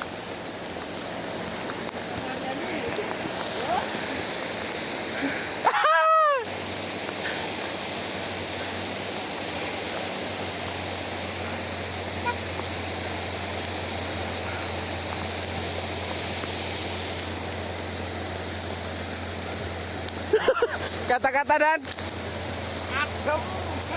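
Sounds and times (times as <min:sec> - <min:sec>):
heavy rain falling: 0:00.0 - 0:23.9.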